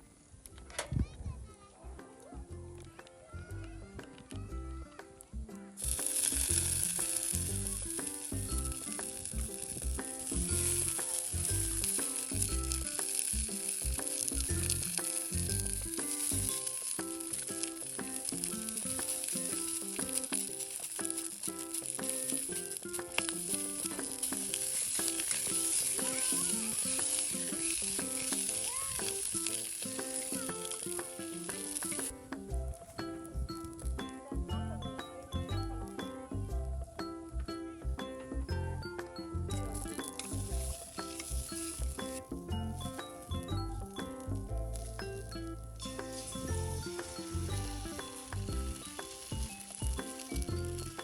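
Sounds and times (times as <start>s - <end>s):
acoustic guitar music: 1.5s - 51.0s
food sizzling in a frying pan: 5.8s - 34.0s, 39.6s - 51.0s.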